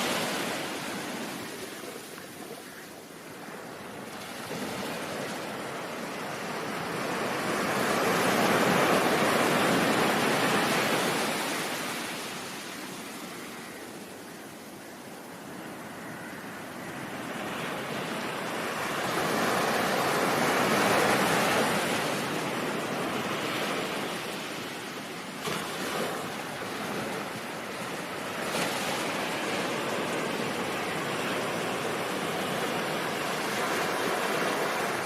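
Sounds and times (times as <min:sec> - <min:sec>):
ocean wave washing: 0:00.0 - 0:13.7, 0:15.2 - 0:35.0.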